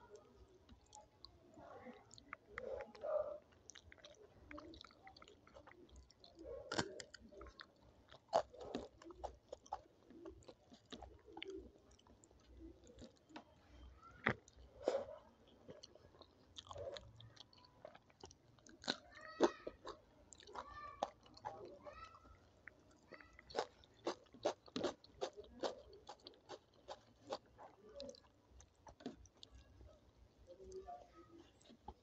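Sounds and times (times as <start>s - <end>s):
wet chewing: 0.1s - 13.6s, 14.2s - 30.8s, 31.4s - 32.0s
crunchy bites: 3.6s - 13.4s, 14.2s - 21.6s, 23.4s - 29.6s.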